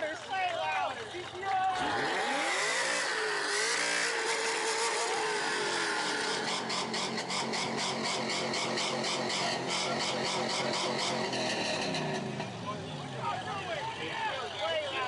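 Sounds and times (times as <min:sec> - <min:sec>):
car engine revving: 0:01.8 - 0:14.2
exhaust popping crackle: 0:03.1 - 0:12.6.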